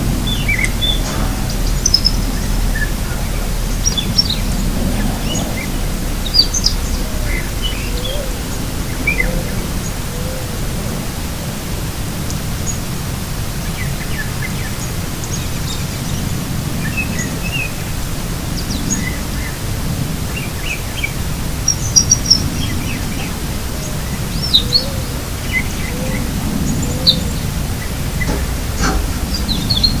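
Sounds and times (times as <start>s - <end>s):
birds chirping: 0.0s - 11.3s, 13.5s - 30.0s
low outdoor rumble: 0.0s - 30.0s.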